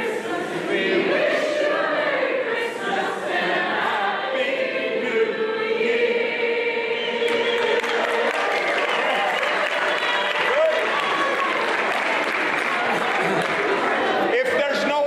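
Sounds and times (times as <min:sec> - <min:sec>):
group singing a carol: 0:00.0 - 0:11.2, 0:11.8 - 0:14.3
people clapping: 0:07.2 - 0:15.0.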